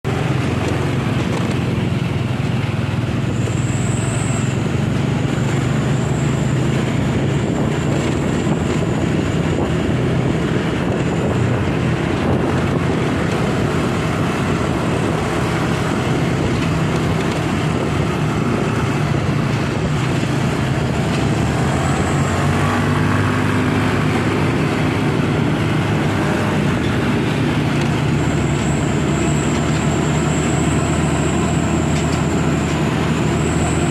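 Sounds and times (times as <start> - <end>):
road noise: 0.0 - 33.9
truck engine drone: 0.0 - 33.9.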